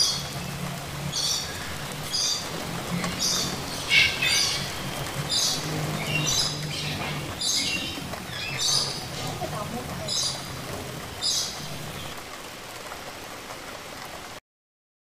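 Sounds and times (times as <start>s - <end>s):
bird calling in harsh high notes: 3.1s - 9.3s.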